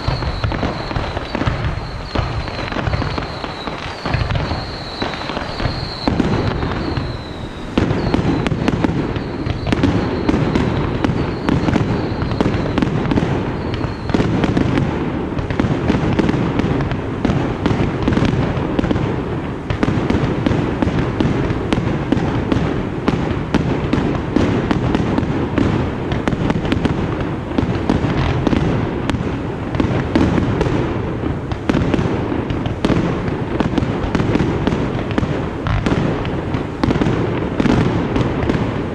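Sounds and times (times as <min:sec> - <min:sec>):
firework whistle: 0:00.0 - 0:16.6
fireworks bursts and booms: 0:00.0 - 0:38.9.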